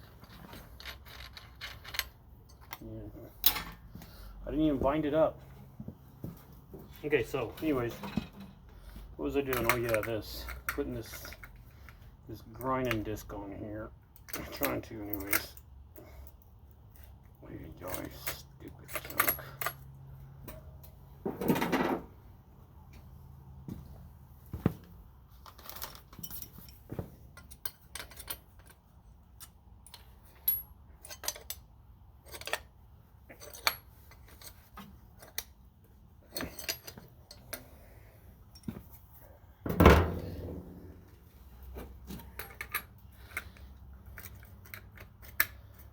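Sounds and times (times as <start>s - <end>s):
metal parts clattering: 0.0s - 2.8s, 25.4s - 28.9s, 33.3s - 35.4s, 36.2s - 37.6s
metal tools clinking: 0.0s - 4.2s, 9.3s - 13.3s, 14.1s - 20.9s, 25.4s - 39.4s, 41.7s - 45.9s.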